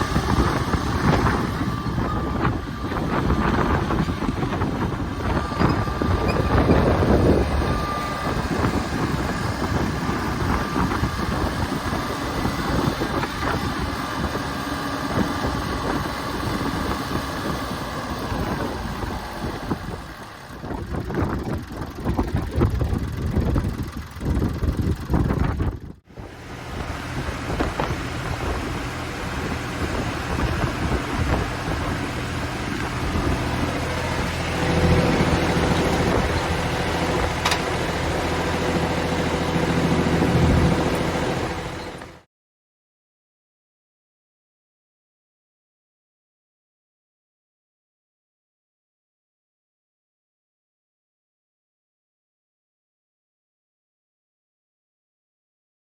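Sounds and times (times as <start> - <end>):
wind buffeting microphone: 0.0 - 42.2
tractor diesel engine running: 0.0 - 42.3.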